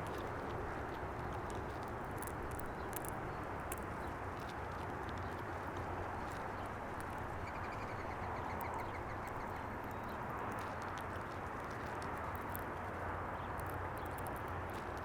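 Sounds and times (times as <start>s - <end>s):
background rumble and hum: 0.0s - 15.0s
small sharp clicks: 1.4s - 5.3s, 13.4s - 15.0s.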